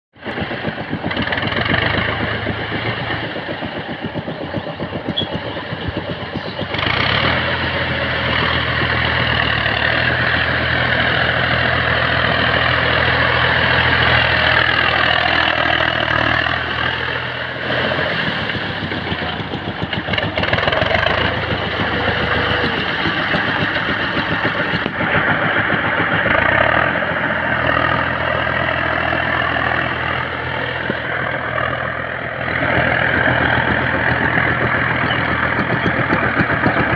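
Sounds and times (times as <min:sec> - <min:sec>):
tractor engine running: 0:00.1 - 0:36.9.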